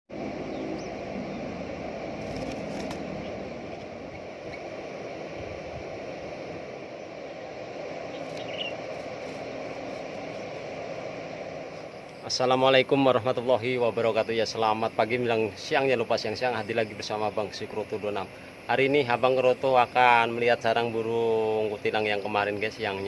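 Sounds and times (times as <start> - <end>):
low rumbling background noise: 0.1 - 23.0
high chirp: 8.1 - 8.9.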